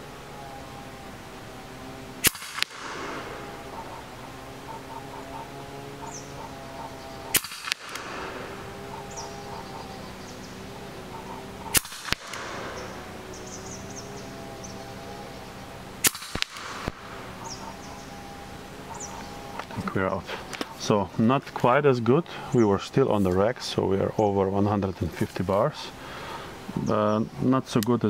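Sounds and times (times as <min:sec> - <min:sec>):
air rifle shots: 0:01.8 - 0:14.4, 0:15.6 - 0:18.2.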